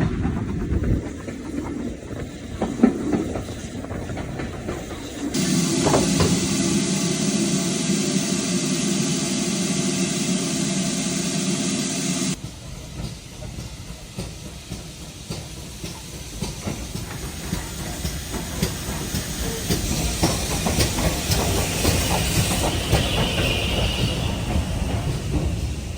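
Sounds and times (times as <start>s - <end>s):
steam locomotive hissing: 0.1s - 25.9s.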